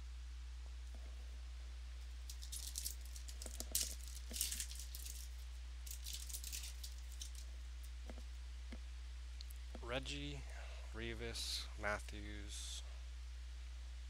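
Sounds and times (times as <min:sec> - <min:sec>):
steady low hum: 0:00.0 - 0:14.0
trading cards rustling and clicking: 0:02.3 - 0:07.5.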